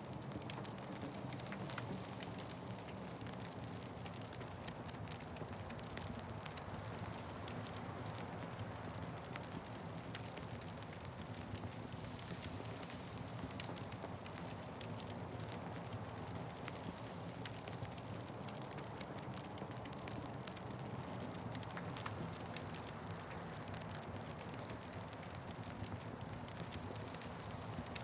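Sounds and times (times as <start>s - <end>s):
wood fire crackling: 0.1s - 28.0s.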